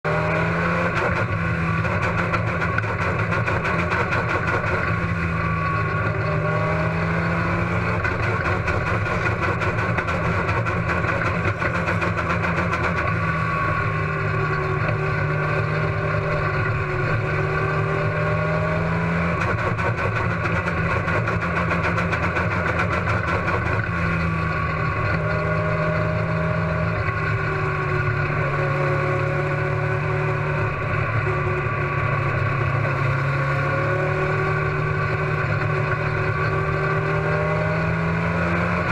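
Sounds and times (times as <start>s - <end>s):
race car engine misfiring: 19.4s - 25.2s.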